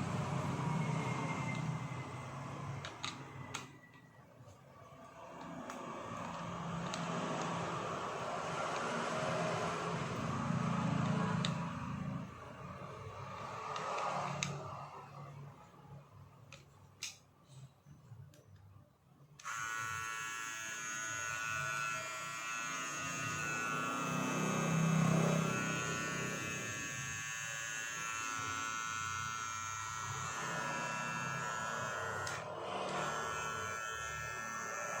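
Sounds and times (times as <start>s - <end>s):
electric hair trimmer buzzing: 5.4s - 12.0s, 19.4s - 35.0s.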